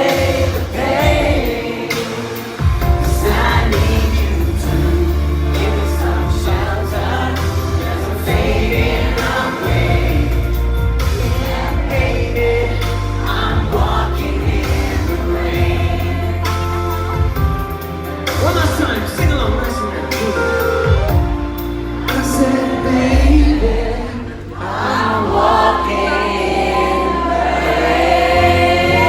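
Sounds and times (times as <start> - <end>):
male vocal group singing in harmony: 0.0 - 29.0
heavy bass line: 18.9 - 29.0.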